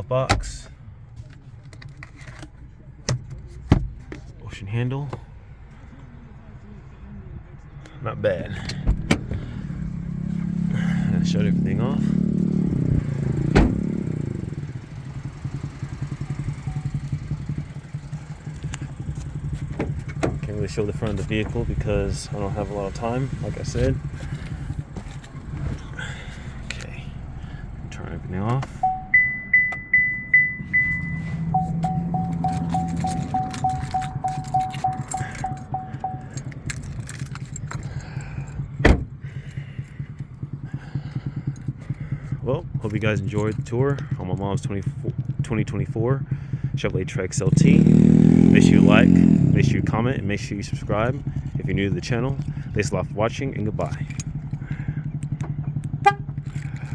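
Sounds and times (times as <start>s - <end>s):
car engine idling: 0.1s - 56.9s
car warning chime beeping: 16.2s - 17.1s, 28.7s - 36.7s.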